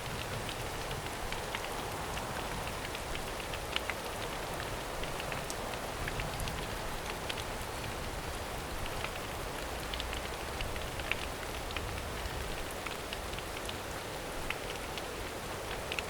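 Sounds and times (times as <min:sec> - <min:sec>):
rain falling in forest: 0:00.0 - 0:16.0
drops ticking on leaves: 0:08.7 - 0:16.0.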